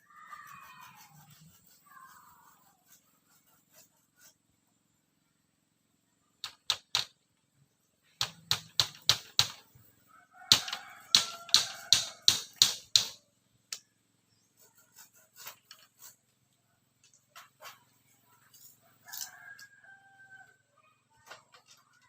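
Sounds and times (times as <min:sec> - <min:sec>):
sharp blows on bamboo: 0:08.2 - 0:09.6, 0:10.5 - 0:13.2.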